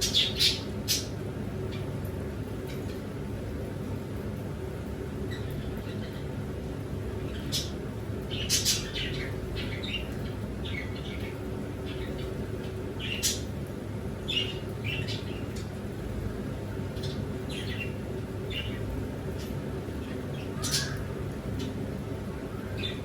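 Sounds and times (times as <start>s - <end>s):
pet birds chirping: 0.0s - 1.9s, 7.3s - 13.5s, 14.2s - 15.7s, 16.9s - 21.8s, 22.5s - 23.0s.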